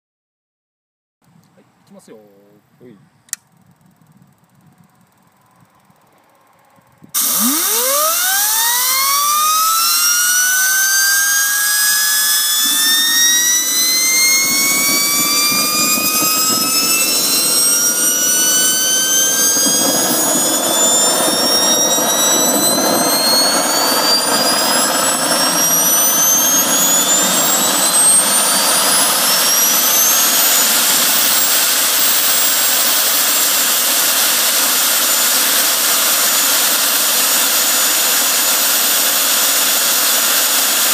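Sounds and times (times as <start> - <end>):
exhaust rush: 6.4 - 38.2
jet engine spooling up: 7.1 - 40.9.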